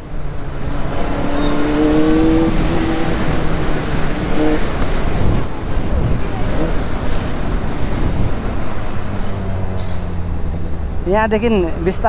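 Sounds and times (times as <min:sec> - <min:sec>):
motorcycle engine running: 0:00.0 - 0:12.0
wind on microphone: 0:00.1 - 0:12.0.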